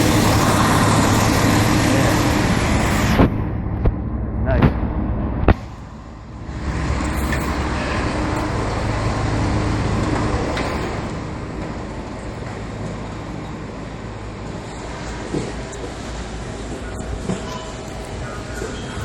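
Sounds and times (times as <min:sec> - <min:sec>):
steady low rumble: 0:00.0 - 0:19.0
truck driving past: 0:00.0 - 0:19.0.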